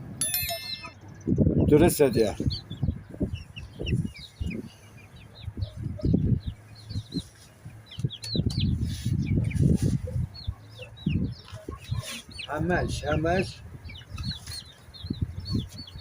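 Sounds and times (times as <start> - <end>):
short high chirps: 0.2 - 1.2
chickens clucking: 2.2 - 16.0.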